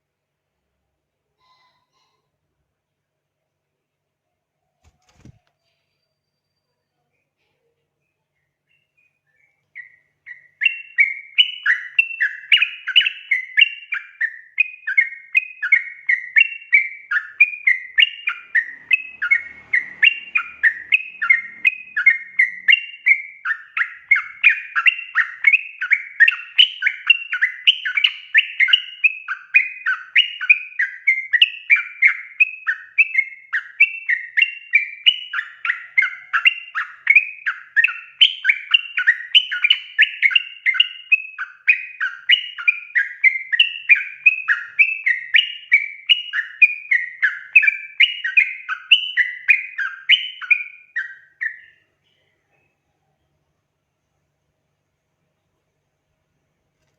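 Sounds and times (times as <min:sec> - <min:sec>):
bird song bubbly chatter: 0:08.0 - 0:53.4.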